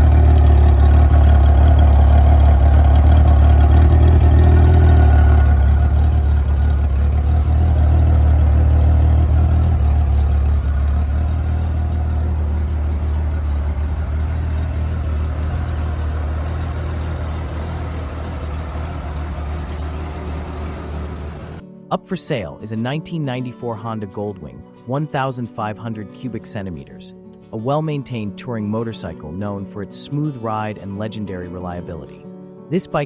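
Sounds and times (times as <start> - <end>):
motorcycle engine idling: 0.0 - 21.6.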